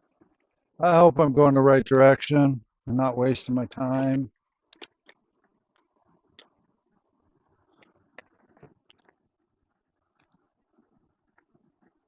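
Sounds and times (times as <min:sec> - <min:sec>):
faint sharp clicks and taps: 0:04.3 - 0:06.8, 0:07.6 - 0:09.4, 0:10.0 - 0:12.0.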